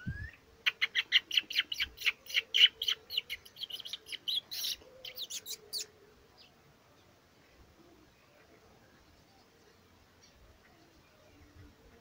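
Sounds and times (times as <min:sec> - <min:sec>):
songbird chirping rapidly: 0:00.0 - 0:07.2.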